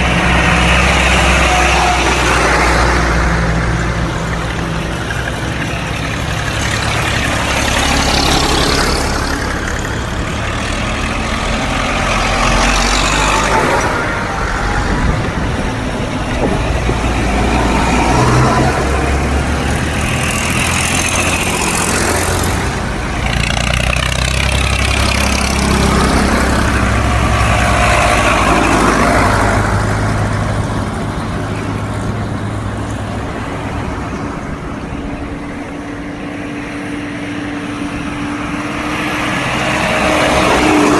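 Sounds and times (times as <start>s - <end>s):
tractor engines rumbling past: 0.0s - 40.9s.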